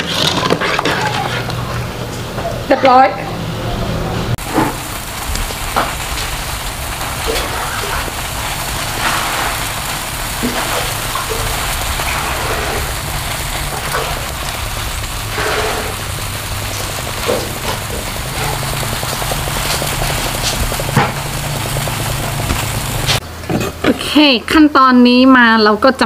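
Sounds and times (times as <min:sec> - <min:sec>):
chilies sizzling in hot oil: 0:04.4 - 0:23.3.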